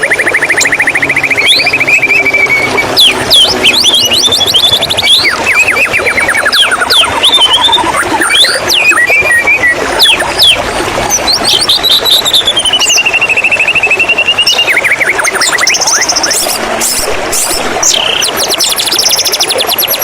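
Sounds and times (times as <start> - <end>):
long rapid bird trill: 0.0 - 10.6
bird singing varied song: 0.0 - 20.0.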